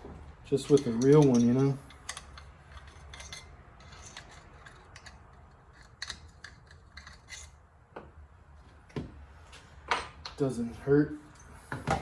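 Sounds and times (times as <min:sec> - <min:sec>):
small metal tools clicking: 0:00.6 - 0:07.6.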